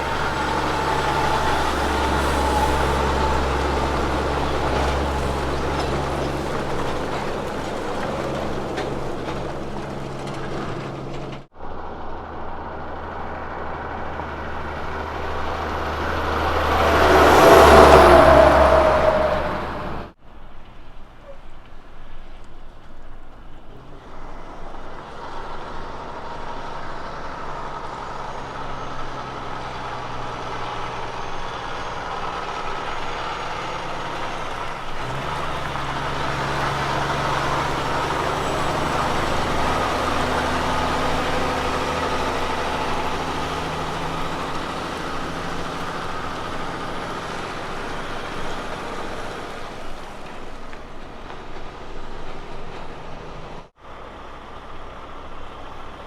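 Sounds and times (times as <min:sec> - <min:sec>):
road noise: 0:00.0 - 0:56.0
truck diesel engine: 0:00.0 - 0:56.0.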